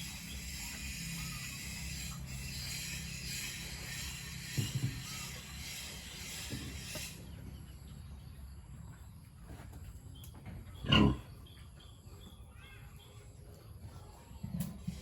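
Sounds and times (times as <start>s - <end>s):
pig grunting: 10.8s - 11.4s.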